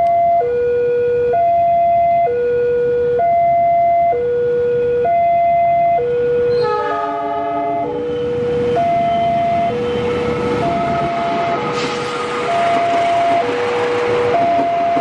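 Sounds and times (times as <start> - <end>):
level crossing alarm: 0.0 - 15.0
train horn chord: 6.5 - 11.8
train rushing noise: 6.5 - 15.0.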